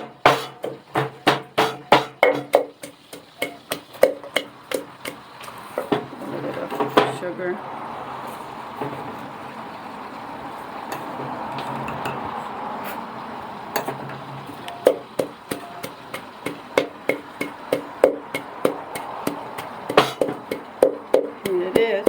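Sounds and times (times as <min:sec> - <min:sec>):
pestle pounding in a mortar: 0:00.0 - 0:06.2, 0:14.8 - 0:22.0.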